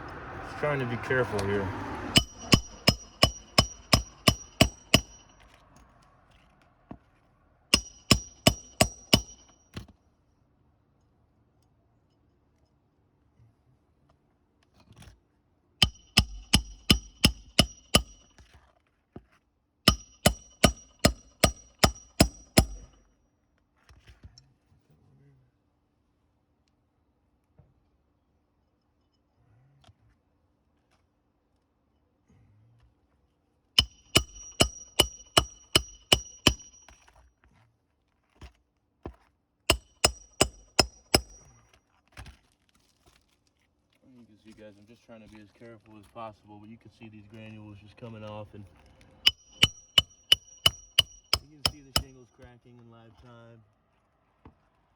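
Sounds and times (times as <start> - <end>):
hammer striking metal: 2.1 - 5.4, 7.7 - 9.5, 15.8 - 18.3, 19.9 - 23.0, 33.8 - 37.0, 39.7 - 41.5, 49.3 - 52.2.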